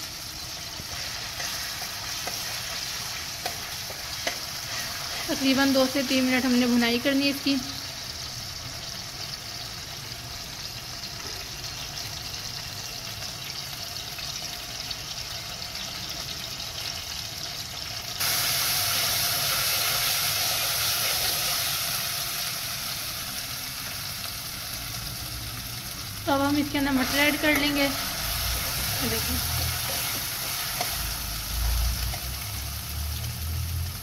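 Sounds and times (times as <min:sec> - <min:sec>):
paste sizzling in hot oil: 0:00.0 - 0:34.0.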